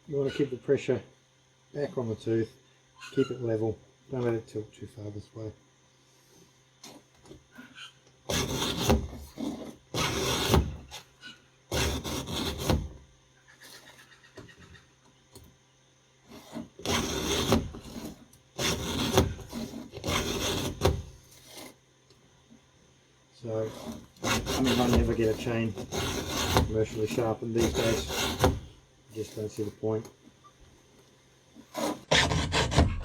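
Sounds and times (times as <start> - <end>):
file rasping on chainsaw chain: 8.3 - 11.1, 11.7 - 13.0, 16.3 - 21.8, 23.5 - 29.7, 31.6 - 33.0.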